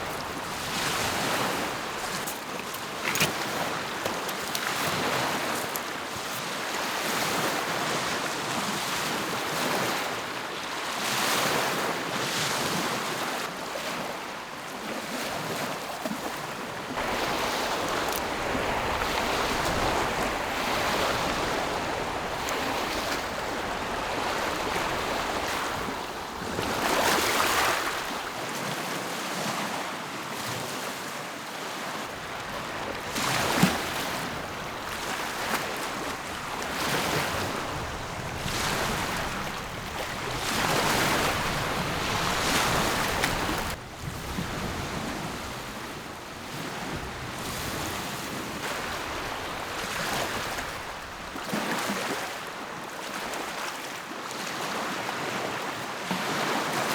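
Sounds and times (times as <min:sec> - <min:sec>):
waves washing against shore: 0:00.0 - 0:10.2, 0:16.2 - 0:29.7, 0:31.9 - 0:53.8.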